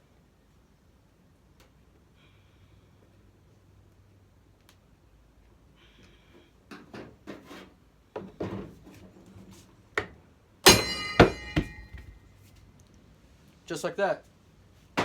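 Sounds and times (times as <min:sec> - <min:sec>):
loud ringing metal clank: 0:10.7 - 0:12.2.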